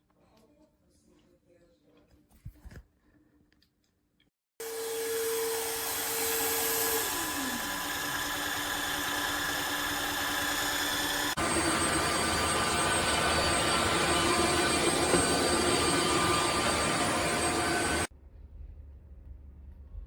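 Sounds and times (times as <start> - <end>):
floor vacuum running: 4.6 - 18.1.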